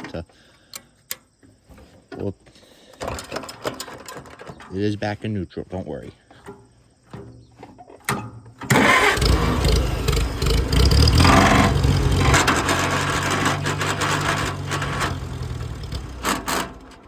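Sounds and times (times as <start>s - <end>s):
tractor starter cranking engine: 2.9s - 4.9s, 8.0s - 17.0s.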